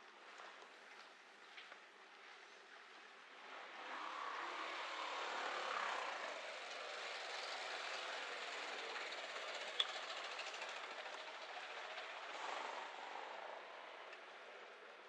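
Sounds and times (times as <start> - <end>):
vehicle passing by: 3.3 - 15.0
traffic hiss: 3.4 - 15.0.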